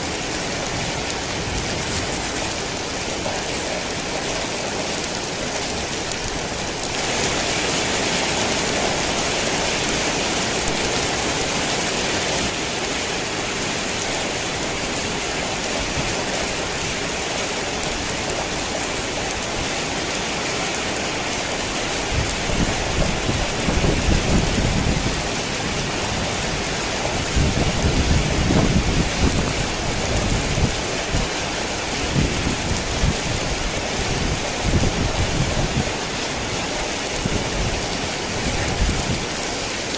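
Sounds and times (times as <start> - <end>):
heavy rain falling: 0.0 - 39.9
rolling thunder rumbles: 22.0 - 36.2.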